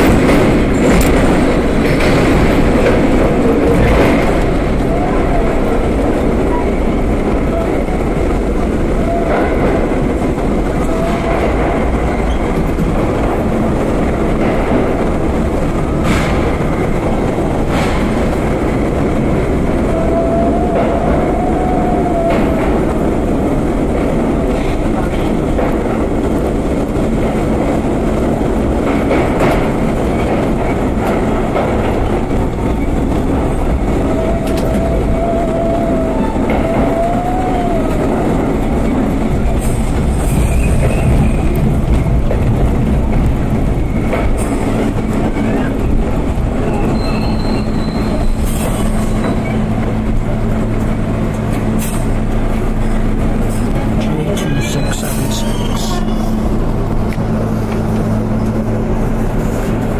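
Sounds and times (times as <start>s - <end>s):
subway train rumbling on rails: 0.0s - 59.9s
wheels clicking over rail joints: 0.0s - 59.9s
wheel squeals: 46.6s - 49.8s.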